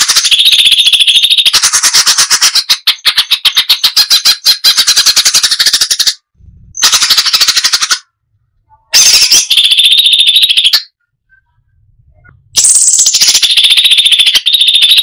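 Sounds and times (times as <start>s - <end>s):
bird singing rapid high notes: 12.4s - 15.0s.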